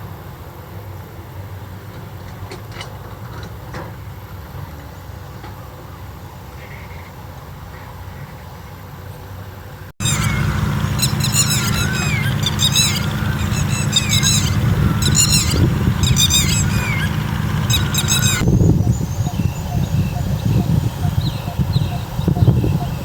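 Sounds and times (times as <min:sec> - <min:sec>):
birds chirping loudly: 0:10.0 - 0:23.0.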